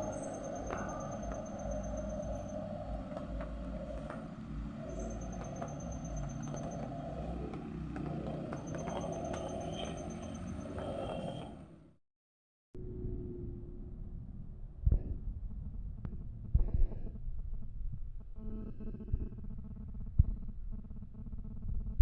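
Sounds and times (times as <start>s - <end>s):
faint high pulsed chirp: 0.0s - 11.4s
heavy truck engine rumbling: 0.0s - 11.9s.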